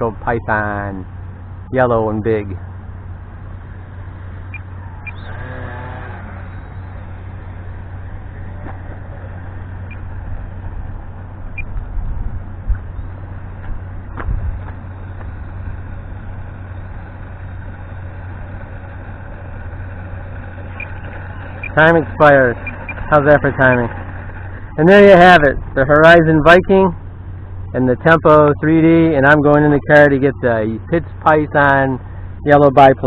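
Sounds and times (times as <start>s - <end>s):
wavering whine: 0.0s - 30.0s
wind rumble on microphone: 4.5s - 17.7s, 20.8s - 27.0s.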